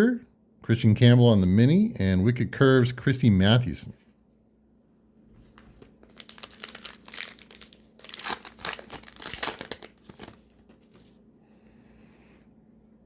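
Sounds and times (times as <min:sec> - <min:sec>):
card pack wrapper tearing and crinkling: 0:05.5 - 0:11.0.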